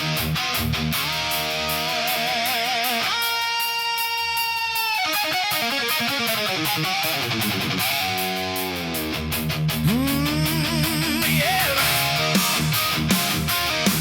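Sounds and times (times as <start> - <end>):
lead guitar with vibrato: 0.0 - 14.0
steady beat: 0.0 - 14.0.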